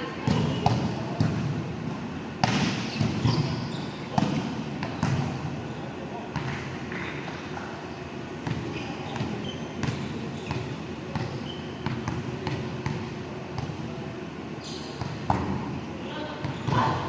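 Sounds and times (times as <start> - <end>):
volleyball hitting hands and floor: 2.4 - 3.2
shoe squeaks: 2.8 - 4.2, 8.6 - 11.8, 14.6 - 15.0.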